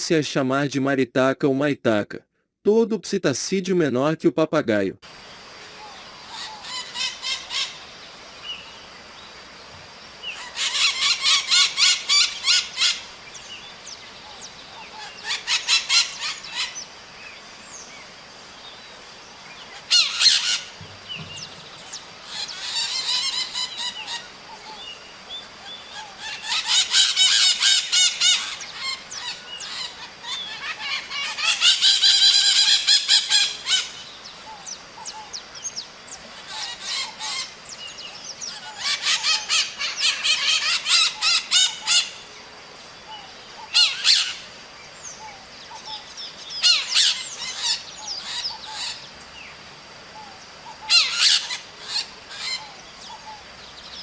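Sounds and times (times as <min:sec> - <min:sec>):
parrot screeching: 0:06.3 - 0:07.8, 0:10.4 - 0:13.1, 0:15.0 - 0:16.8, 0:19.8 - 0:20.7, 0:22.3 - 0:24.3, 0:25.9 - 0:33.9, 0:36.4 - 0:37.5, 0:38.5 - 0:42.2, 0:43.7 - 0:44.4, 0:46.6 - 0:49.0, 0:50.8 - 0:52.7.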